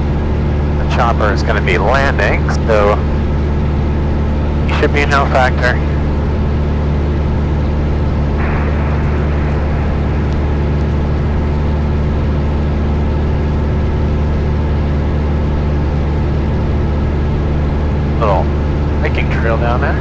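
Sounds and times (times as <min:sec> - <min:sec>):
small plane engine droning: 0:00.0 - 0:20.0
airflow rushing: 0:08.3 - 0:13.3.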